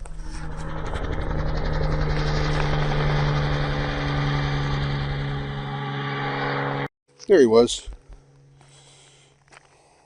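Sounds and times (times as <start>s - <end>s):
helicopter engine and rotor: 0.0s - 6.9s.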